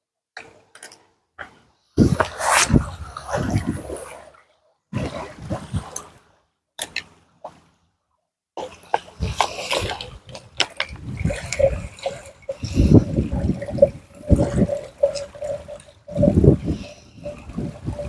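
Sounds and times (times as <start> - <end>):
water splashing and lapping: 0.4 - 7.8, 8.6 - 18.0
wind buffeting microphone: 2.0 - 4.2, 5.0 - 6.1, 9.1 - 18.0.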